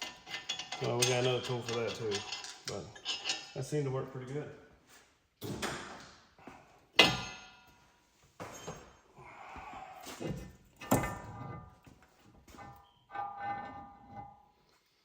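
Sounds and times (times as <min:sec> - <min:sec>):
metal tools clanking: 0:00.0 - 0:03.7, 0:07.0 - 0:07.7, 0:12.5 - 0:14.5.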